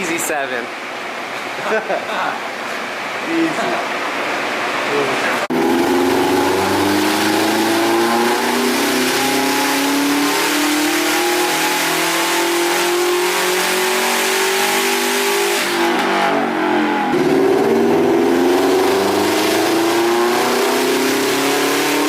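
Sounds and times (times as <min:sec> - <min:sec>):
car engine revving at full throttle: 0:05.5 - 0:22.0.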